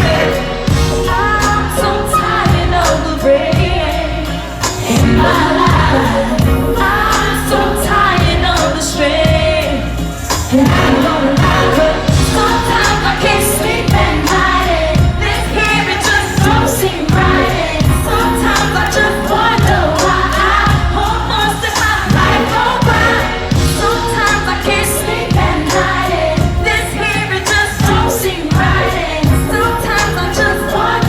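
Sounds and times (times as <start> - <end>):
backing vocals: 0.0 - 31.0
steady drum beat: 0.0 - 31.0
woman singing: 0.0 - 31.0.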